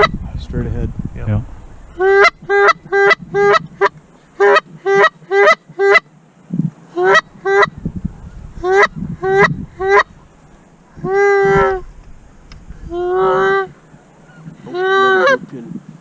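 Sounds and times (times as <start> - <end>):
goose honking: 1.9 - 6.0, 7.0 - 7.8, 8.6 - 10.3, 10.9 - 11.9, 12.9 - 15.5.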